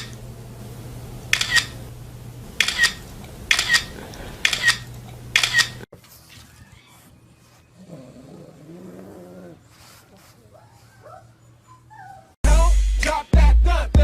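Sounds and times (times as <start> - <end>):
low steady hum: 0.0 - 5.5
sharp double click: 1.3 - 1.8, 2.6 - 4.8, 5.4 - 5.8.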